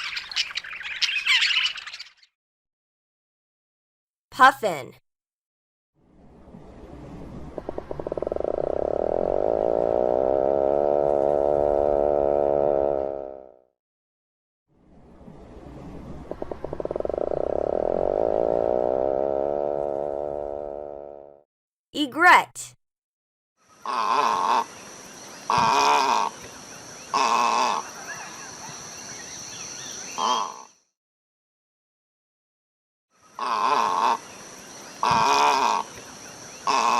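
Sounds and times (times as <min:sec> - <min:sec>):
puffin growling call: 0:07.5 - 0:13.4, 0:16.3 - 0:21.3, 0:23.8 - 0:24.7, 0:25.5 - 0:26.4, 0:27.1 - 0:28.5, 0:33.4 - 0:34.3, 0:35.0 - 0:36.0, 0:36.6 - 0:36.9.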